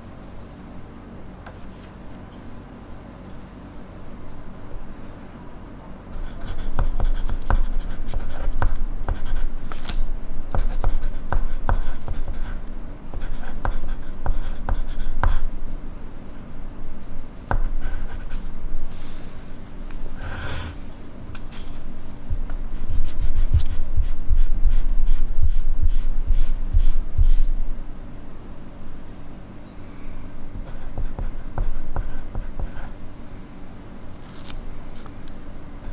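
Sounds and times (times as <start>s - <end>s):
pencil writing on paper: 6.2s - 9.5s, 10.5s - 15.5s, 17.5s - 18.5s, 22.8s - 27.5s, 30.6s - 33.0s.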